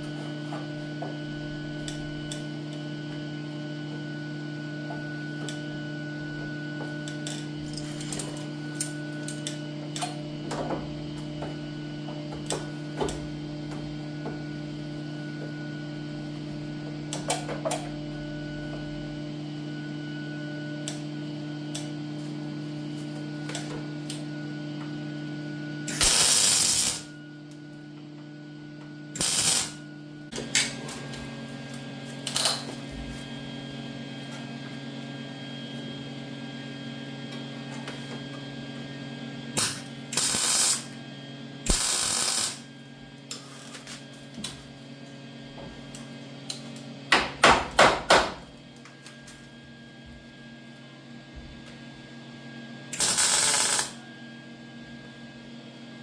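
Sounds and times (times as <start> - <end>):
welding crackle: 25.9 - 27.1, 29.2 - 29.8, 40.2 - 40.9, 41.7 - 42.6, 53.0 - 54.0.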